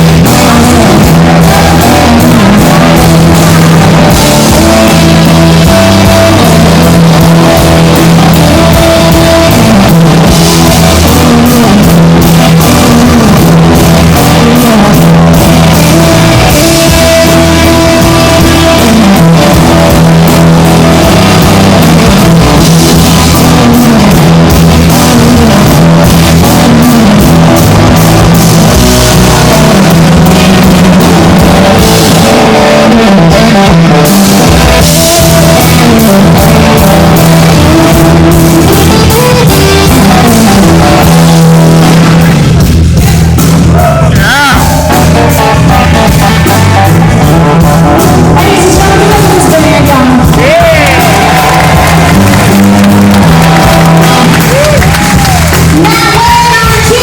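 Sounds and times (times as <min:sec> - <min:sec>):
rock band playing: 0:00.0 - 0:57.0
low sliding notes: 0:44.6 - 0:55.9.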